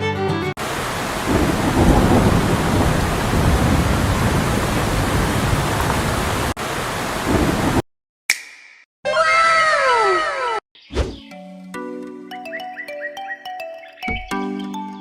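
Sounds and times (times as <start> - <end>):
rush of falling water: 0.6 - 7.8.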